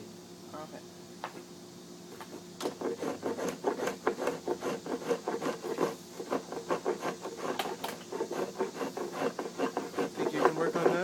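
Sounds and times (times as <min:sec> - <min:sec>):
wood being rasped by hand: 0:02.6 - 0:11.0.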